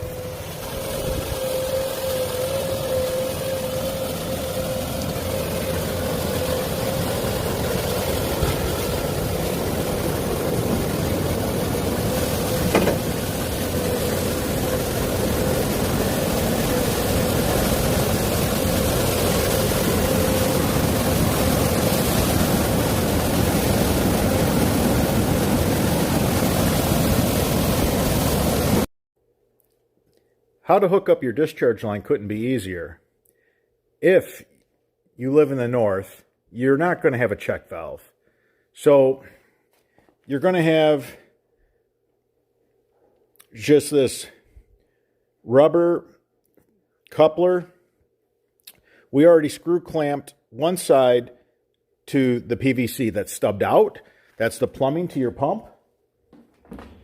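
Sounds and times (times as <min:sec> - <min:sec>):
engine running with hum: 0:00.0 - 0:28.8.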